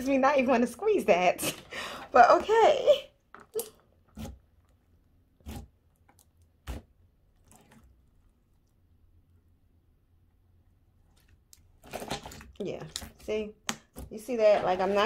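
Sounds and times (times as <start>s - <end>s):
wet slime squishes: 3.4s - 9.6s, 10.3s - 14.1s.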